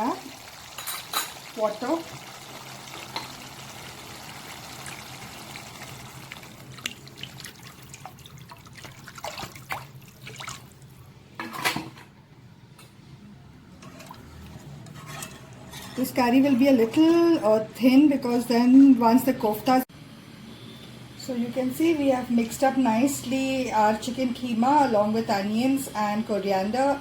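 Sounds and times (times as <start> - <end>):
water trickling into a pan: 0.0 - 10.9.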